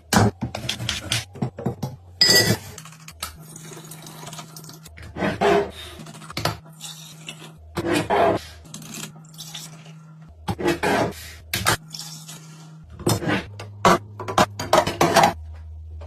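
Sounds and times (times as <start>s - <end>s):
glassy clink: 2.2s - 2.6s.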